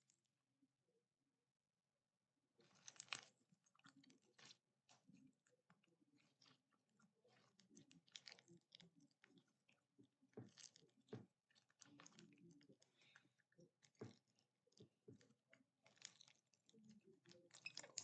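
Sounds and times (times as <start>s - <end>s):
slime squished by hand: 2.6s - 5.2s.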